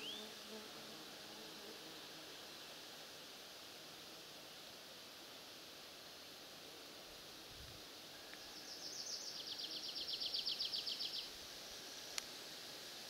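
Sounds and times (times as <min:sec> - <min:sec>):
songbird fast trill: 0:00.0 - 0:00.3
faint steady hiss: 0:00.0 - 0:13.0.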